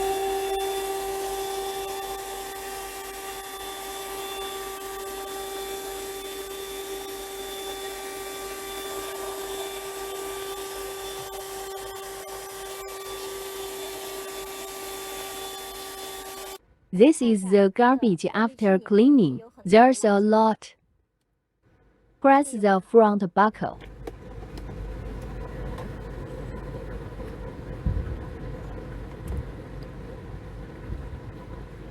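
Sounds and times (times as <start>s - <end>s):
car vacuum cleaner whining: 0.0s - 16.6s, 23.8s - 31.9s.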